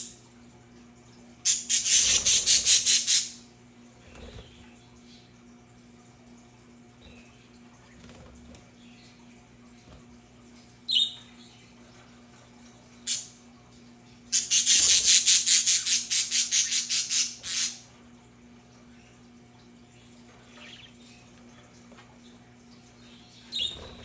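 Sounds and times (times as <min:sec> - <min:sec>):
harsh chattering squawks: 0:01.5 - 0:03.3.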